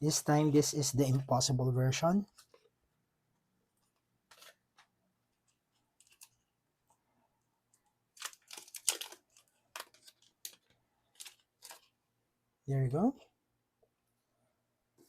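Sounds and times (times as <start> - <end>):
packaging crinkling and rustling: 8.1 - 12.0.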